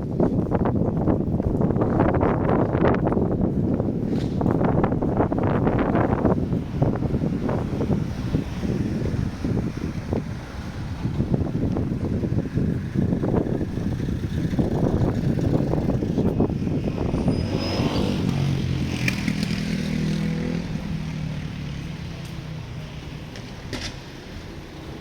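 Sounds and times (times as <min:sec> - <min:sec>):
wind buffeting microphone: 0:00.0 - 0:25.0
passing vehicle engine hum: 0:03.8 - 0:25.0.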